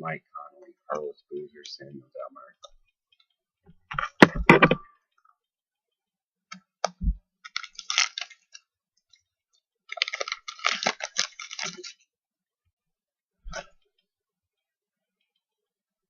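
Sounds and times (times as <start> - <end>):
foil wrapper crackly rustling: 7.5 - 8.6, 9.9 - 12.1.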